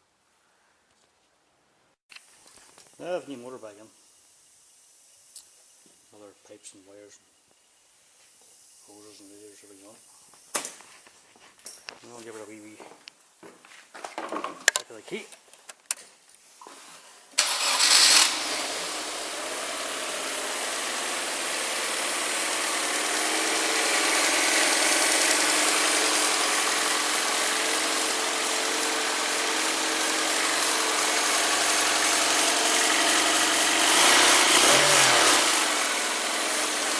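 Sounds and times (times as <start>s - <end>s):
car engine starting and idling: 17.4s - 36.9s.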